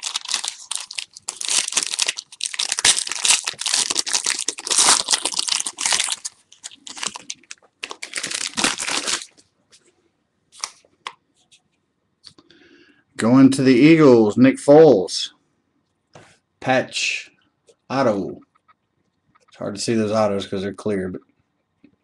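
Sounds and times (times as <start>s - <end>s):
card pack wrapper tearing: 0.0s - 9.3s.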